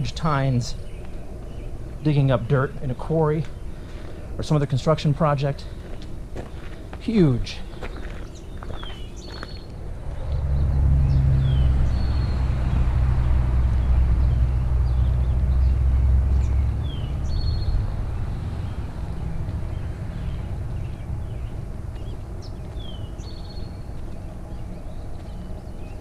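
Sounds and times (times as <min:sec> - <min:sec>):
birds chirping: 0:00.0 - 0:26.0
vehicle engine droning: 0:07.4 - 0:26.0.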